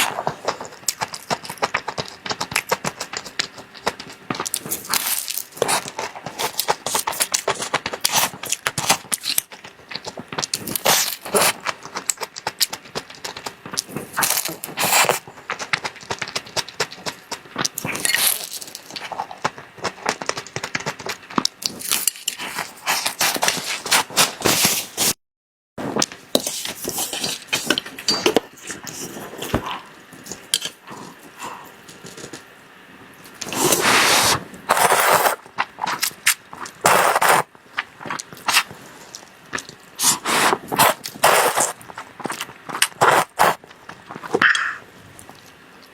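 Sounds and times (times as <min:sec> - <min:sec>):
wet chewing mouth clicks: 0:44.2 - 0:45.6.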